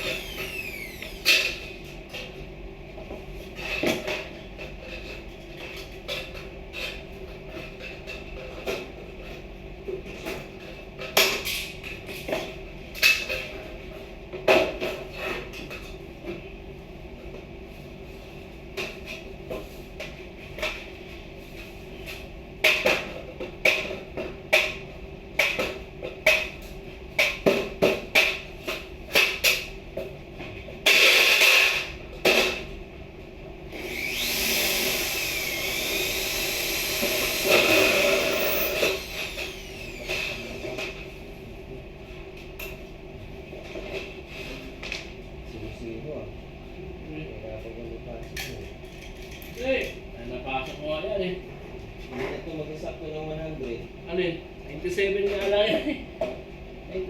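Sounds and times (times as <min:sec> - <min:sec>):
electric power tool running: 0:00.0 - 0:01.3, 0:33.7 - 0:40.6.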